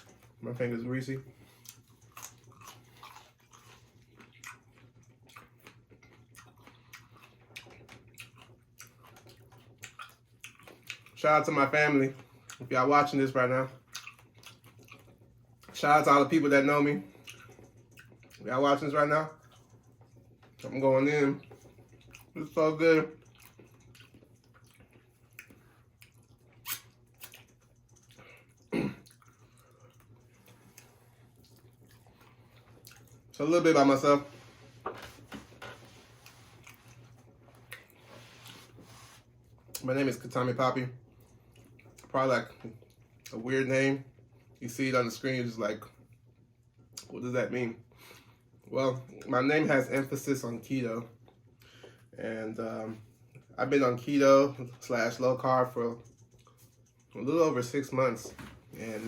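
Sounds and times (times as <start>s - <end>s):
quiet chewing: 0.0s - 0.4s, 1.2s - 11.2s, 12.1s - 12.8s, 13.7s - 15.8s, 17.0s - 20.8s, 21.4s - 33.4s, 34.2s - 39.9s, 41.0s - 43.4s, 51.1s - 53.6s, 54.5s - 59.0s
crunchy chewing: 1.3s - 11.2s, 13.8s - 15.7s, 23.2s - 33.4s
wet mouth clicks: 23.2s - 29.4s.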